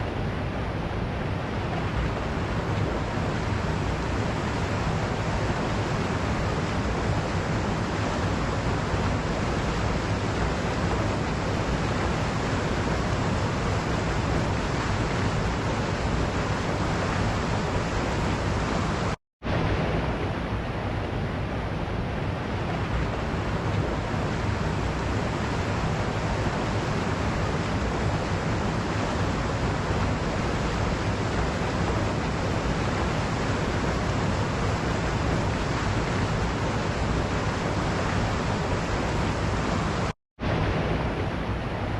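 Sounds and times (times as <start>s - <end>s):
waterfall rushing: 23.1s - 41.9s.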